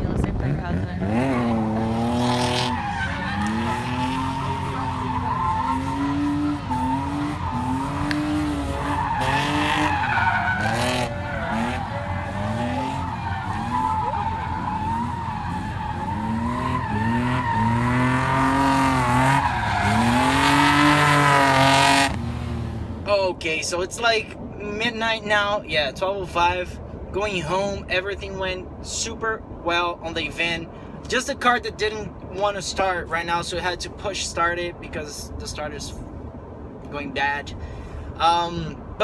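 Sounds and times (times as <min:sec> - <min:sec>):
car engine revving: 0:00.2 - 0:23.1
tires squealing and skidding: 0:01.0 - 0:22.7.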